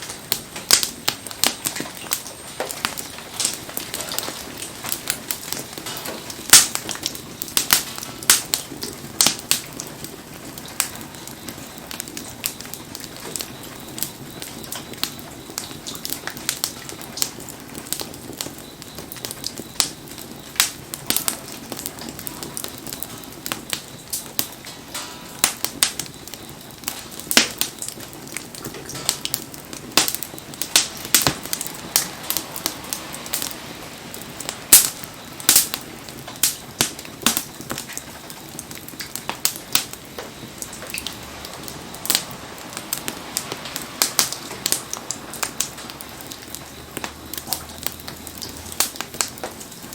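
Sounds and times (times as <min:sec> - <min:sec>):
campfire crackling and popping: 0:00.0 - 0:49.9
rain falling: 0:00.0 - 0:49.9.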